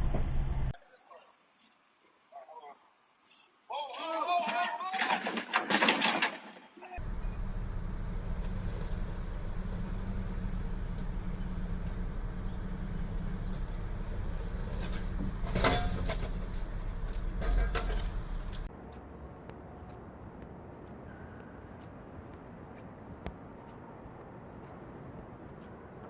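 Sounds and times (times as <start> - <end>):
thin hum: 7.0 - 18.7
engine and road rumble: 7.0 - 26.0.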